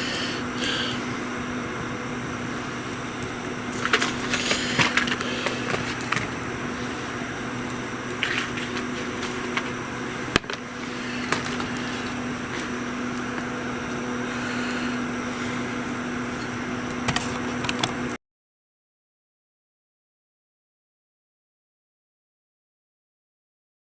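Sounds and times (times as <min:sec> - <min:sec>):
steady low hum: 0:00.0 - 0:18.2
wood fire crackling: 0:00.0 - 0:18.2.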